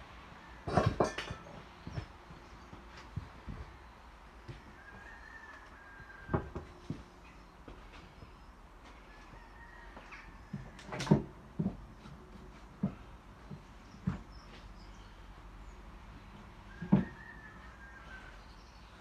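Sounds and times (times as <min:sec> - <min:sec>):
knocks and clunks: 0:00.7 - 0:02.2, 0:16.7 - 0:17.3.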